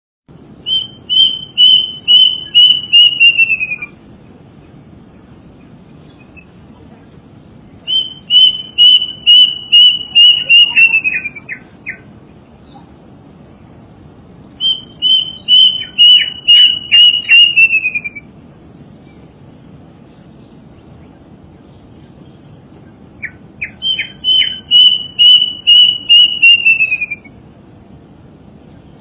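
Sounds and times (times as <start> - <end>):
low hiss: 0.3 - 29.0
songbird singing: 0.3 - 29.0.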